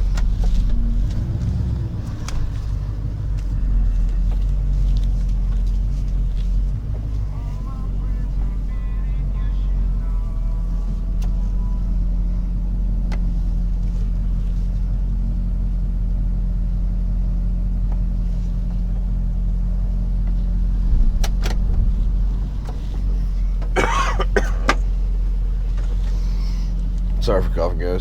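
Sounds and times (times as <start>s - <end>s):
truck engine and road drone: 0.0s - 28.0s
person coughing: 23.8s - 24.8s.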